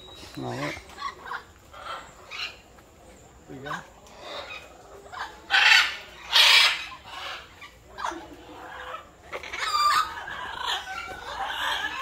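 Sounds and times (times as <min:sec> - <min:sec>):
harsh bird calls: 0:00.0 - 0:12.0.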